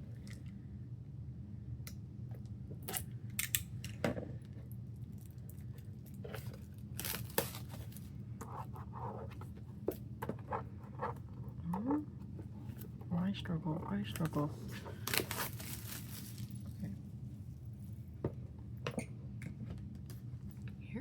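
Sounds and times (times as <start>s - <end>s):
paper and plastic rustling: 6.2s - 8.1s, 13.6s - 16.8s.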